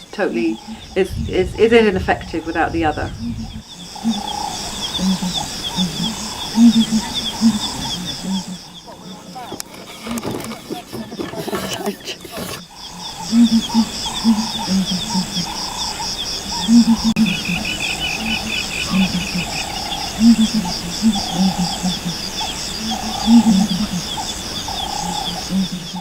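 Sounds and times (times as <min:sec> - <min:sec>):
frogs croaking: 0:03.1 - 0:09.6.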